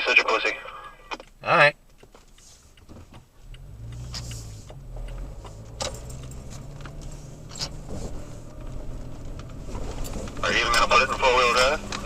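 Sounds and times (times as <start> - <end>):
truck engine running: 3.4 - 12.0.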